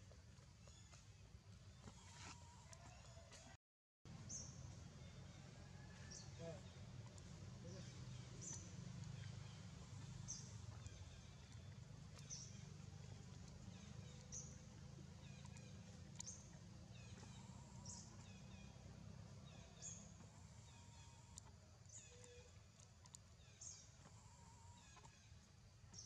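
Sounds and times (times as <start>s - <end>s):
low steady rumble: 4.1s - 26.0s
bird chirping: 4.2s - 22.6s.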